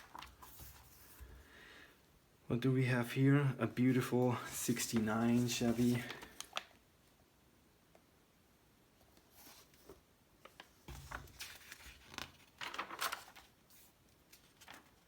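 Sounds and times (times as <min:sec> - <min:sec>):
magazine pages rustling: 0:00.0 - 0:01.4, 0:03.8 - 0:06.8, 0:09.2 - 0:15.0.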